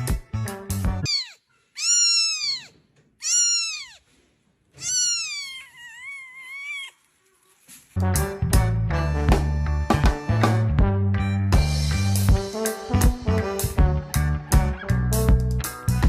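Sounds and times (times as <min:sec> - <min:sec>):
music: 0:00.0 - 0:01.1, 0:08.0 - 0:16.0
cat meowing: 0:01.1 - 0:04.1, 0:04.8 - 0:07.1.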